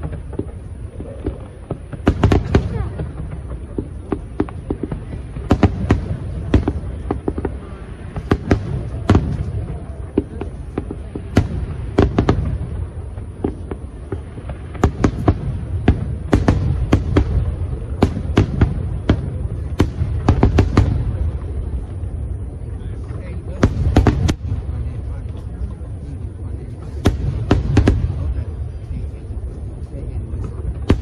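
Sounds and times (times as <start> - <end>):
fireworks bangs: 0.0 - 31.0.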